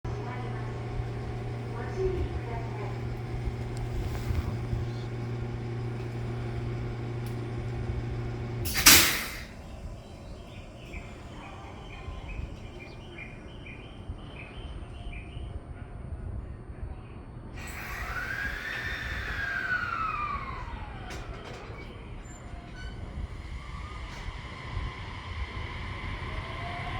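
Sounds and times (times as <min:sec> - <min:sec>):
air hiss: 0:08.6 - 0:09.6, 0:17.6 - 0:21.0.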